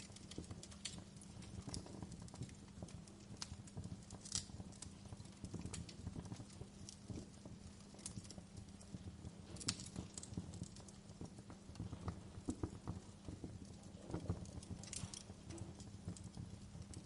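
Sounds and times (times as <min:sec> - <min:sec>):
fireplace crackling: 0:00.0 - 0:17.0.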